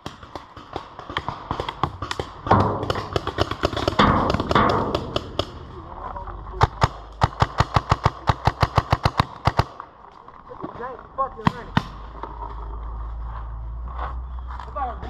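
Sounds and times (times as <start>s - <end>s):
paintball markers firing: 0.0s - 5.6s.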